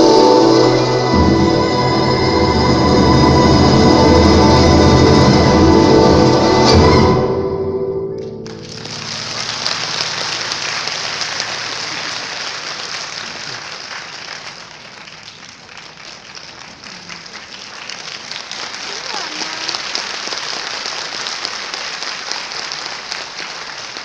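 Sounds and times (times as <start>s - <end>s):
audience applauding: 8.2s - 24.0s.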